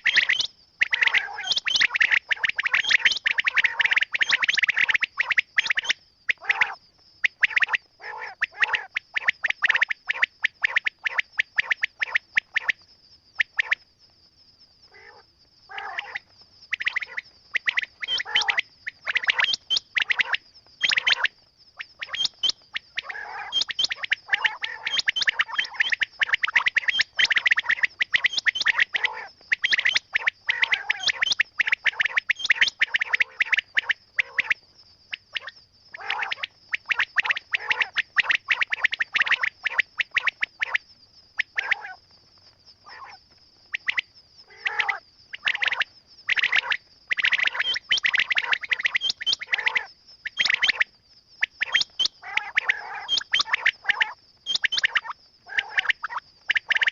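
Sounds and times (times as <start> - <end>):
quail chirping: 0.0 - 6.8, 16.8 - 21.3, 22.0 - 34.5, 36.0 - 40.7, 43.8 - 50.8, 51.5 - 56.9.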